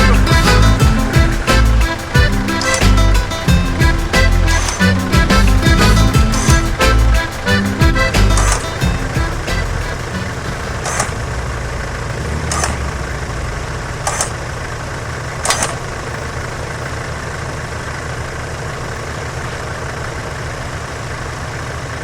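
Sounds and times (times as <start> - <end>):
short sharp sounds: 0.0 - 11.3
vehicle engine running: 0.0 - 22.0.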